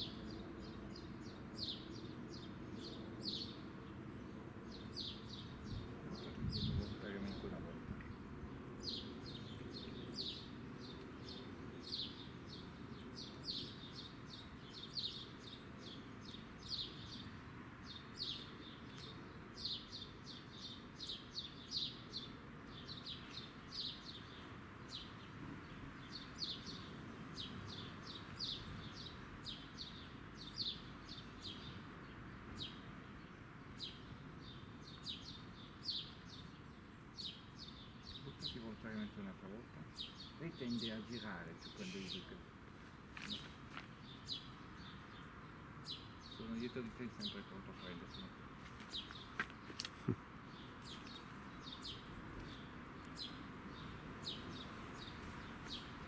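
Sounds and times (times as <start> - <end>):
bird chirping: 0.0 - 42.6, 43.2 - 56.0
faint low background noise: 0.0 - 56.0.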